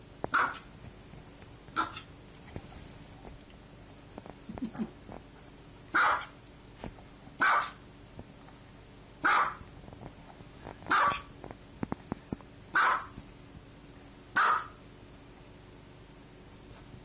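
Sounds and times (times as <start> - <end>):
small dog barking: 0.3 - 0.7, 1.8 - 2.1, 5.9 - 6.4, 7.4 - 7.8, 9.2 - 9.7, 10.9 - 11.3, 12.7 - 13.2, 14.4 - 14.8.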